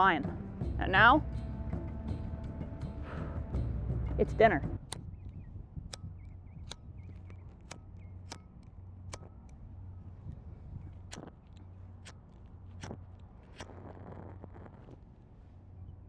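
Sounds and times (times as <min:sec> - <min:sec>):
steady low rumble: 0:00.0 - 0:16.0
sharp clicks or snaps: 0:04.8 - 0:09.6, 0:10.3 - 0:15.0.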